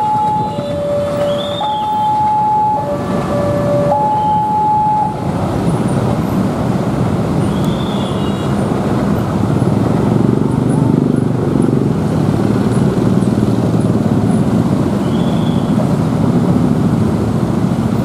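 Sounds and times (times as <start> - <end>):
two-tone warning signal: 0.0 - 5.3
train rumbling on rails: 0.0 - 18.0.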